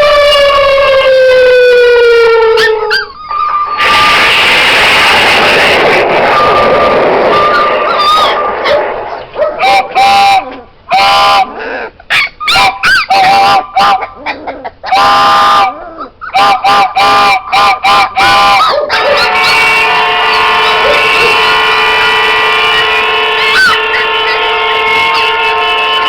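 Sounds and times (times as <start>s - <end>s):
geese honking: 3.4s - 11.5s, 16.4s - 26.0s
steady drone of held pitches: 3.5s - 10.8s, 19.3s - 26.0s.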